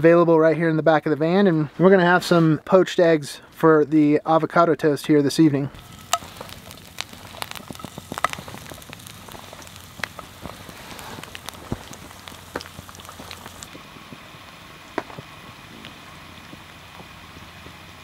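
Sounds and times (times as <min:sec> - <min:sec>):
food frying in oil: 0:05.8 - 0:18.0
oil popping and crackling: 0:05.8 - 0:18.0.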